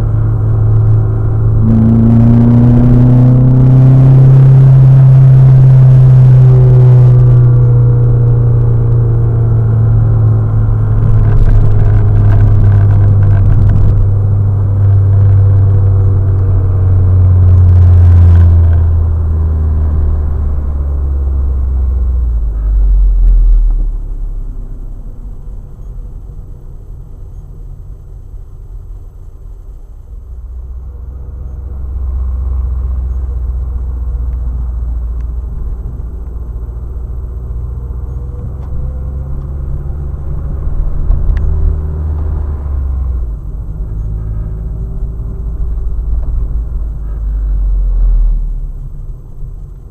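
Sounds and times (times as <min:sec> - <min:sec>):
car engine from inside cabin: 0:00.0 - 0:49.9
road noise: 0:00.0 - 0:49.9.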